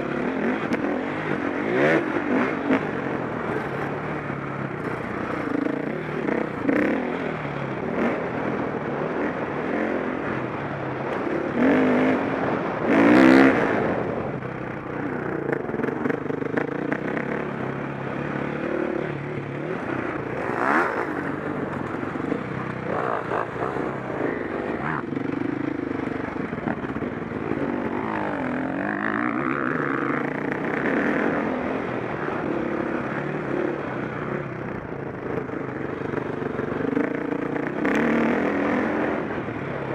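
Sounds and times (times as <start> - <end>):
dirt bike engine revving: 15.2 - 34.4.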